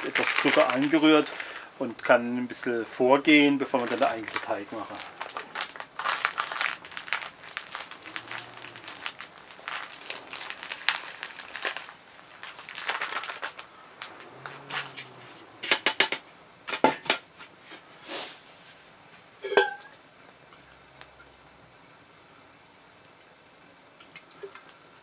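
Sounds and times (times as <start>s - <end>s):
packaging crinkling and rustling: 0.0s - 1.7s, 3.3s - 17.9s.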